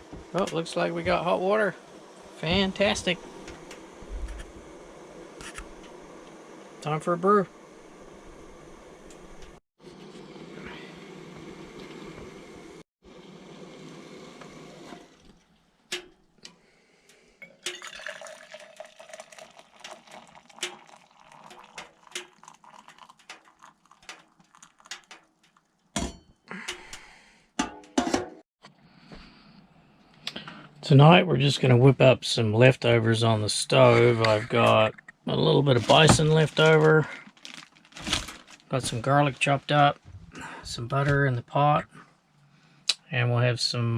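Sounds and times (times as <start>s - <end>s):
hot water pouring: 0.0s - 9.2s, 10.7s - 16.0s, 17.4s - 25.9s, 35.3s - 41.0s
cup and spoon clinking: 17.4s - 23.7s.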